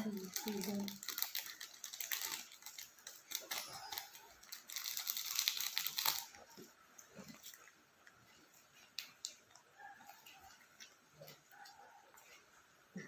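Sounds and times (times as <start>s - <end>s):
small clicks and crackles: 0.0s - 12.6s
eating sounds: 0.0s - 13.0s.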